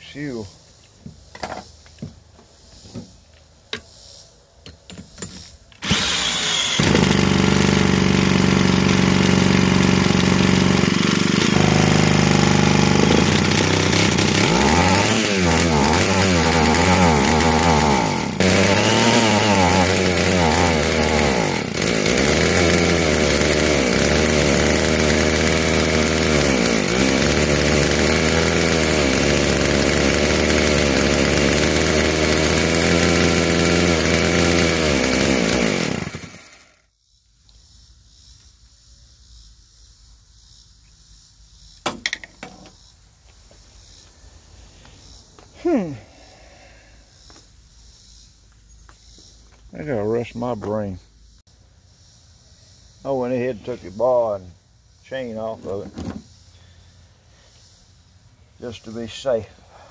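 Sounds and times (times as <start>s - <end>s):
chainsaw engine revving and idling: 5.8s - 36.8s.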